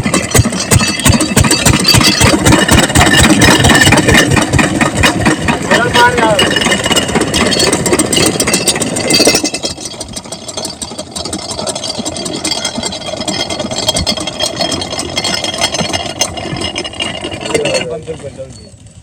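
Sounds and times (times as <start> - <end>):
diesel water pump engine running: 0.0 - 19.0.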